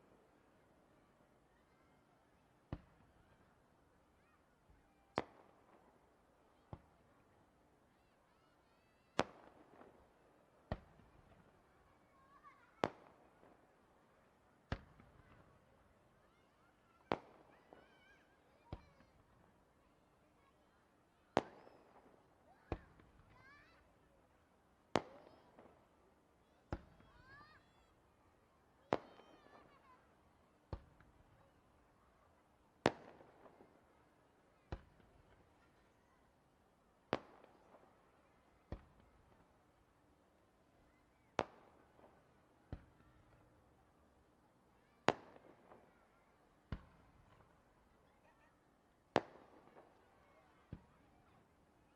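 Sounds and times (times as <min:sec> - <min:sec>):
fireworks bangs with echo: 0:28.9 - 0:29.8, 0:32.8 - 0:33.8, 0:37.1 - 0:37.9, 0:41.4 - 0:43.3, 0:45.0 - 0:45.9, 0:46.6 - 0:47.5, 0:49.1 - 0:50.0.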